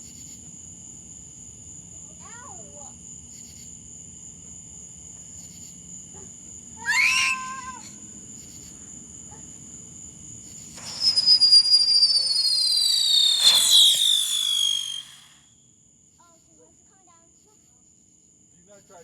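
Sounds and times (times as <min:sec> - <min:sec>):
crickets trilling: 0:00.0 - 0:19.0
high-pitched cry: 0:06.8 - 0:07.9
firework crackling: 0:10.8 - 0:15.4
whistles falling in pitch: 0:10.8 - 0:15.4.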